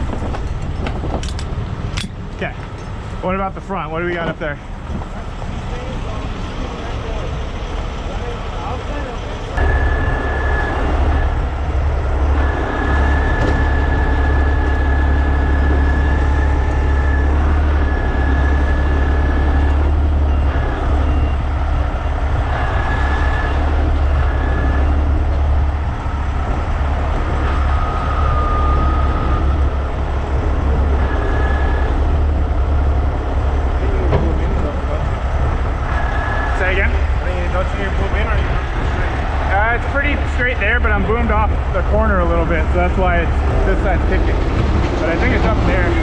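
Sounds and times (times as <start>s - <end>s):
diesel engine rumbling: 0.0s - 46.0s
high whine: 9.4s - 44.2s.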